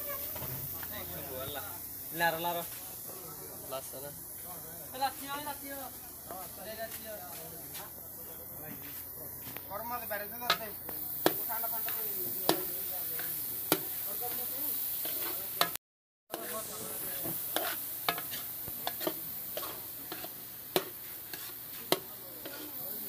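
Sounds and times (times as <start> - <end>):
lentils sizzling in oil: 0.0 - 23.0
spatula scraping wok: 0.0 - 23.0
spatula clanking on pan: 10.5 - 14.0, 17.2 - 22.8.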